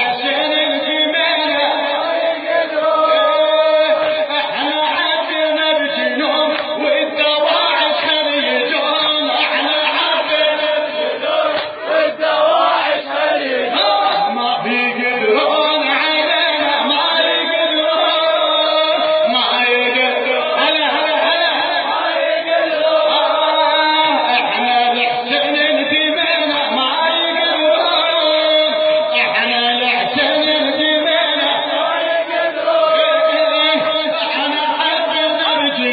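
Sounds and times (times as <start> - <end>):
man chanting a devotional song: 0.0 - 35.9.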